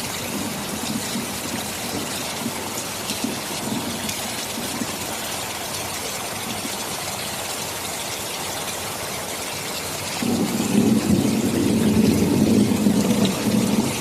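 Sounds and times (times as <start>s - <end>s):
thunder rumbling: 0.0s - 5.4s, 10.2s - 14.0s
rain hissing: 0.0s - 14.0s.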